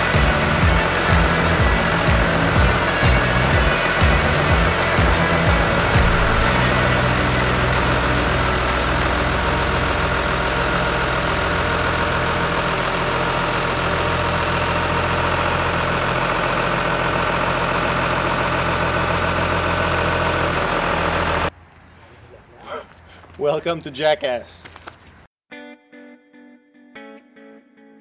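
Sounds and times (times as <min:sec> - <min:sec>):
tractor diesel engine idling: 0:00.0 - 0:21.5.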